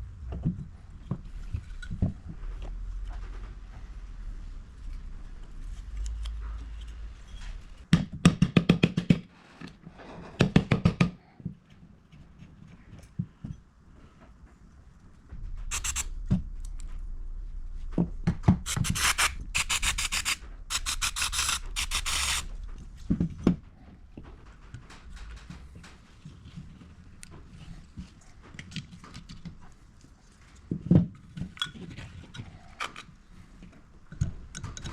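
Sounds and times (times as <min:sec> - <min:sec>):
metallic scraping: 0:15.5 - 0:17.8, 0:18.6 - 0:23.1
ratchet spanner clicking: 0:15.7 - 0:16.1, 0:18.7 - 0:22.5.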